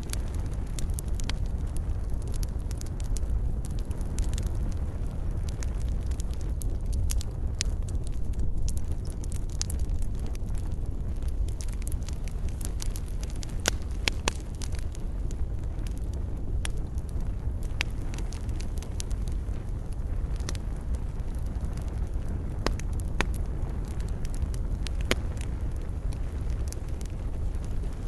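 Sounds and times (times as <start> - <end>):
burning wood crackling: 0.0 - 28.0
campfire low rumble: 0.0 - 28.0.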